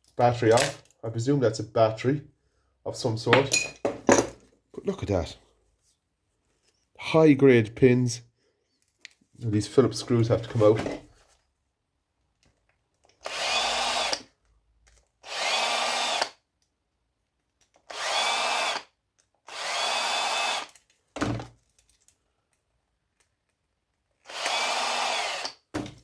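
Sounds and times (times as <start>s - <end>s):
electric drill whining: 13.2s - 14.3s, 15.2s - 16.4s, 17.9s - 18.9s, 19.5s - 20.8s, 24.2s - 25.6s.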